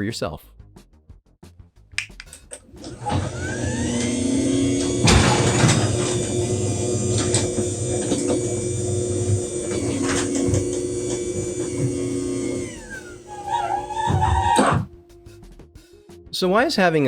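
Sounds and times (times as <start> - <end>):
garage door opener motor hum: 2.5 - 14.9.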